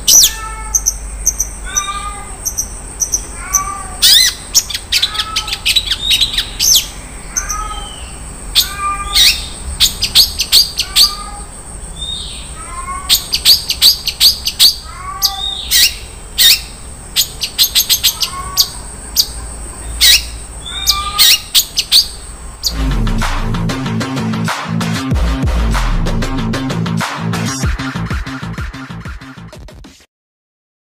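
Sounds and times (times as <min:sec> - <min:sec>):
bird singing high chirps: 0:00.0 - 0:22.8.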